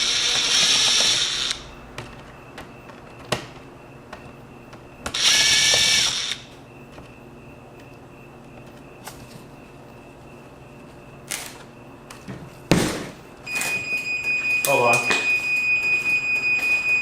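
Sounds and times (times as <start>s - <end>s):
power screwdriver running: 0.0s - 1.6s, 5.1s - 6.5s.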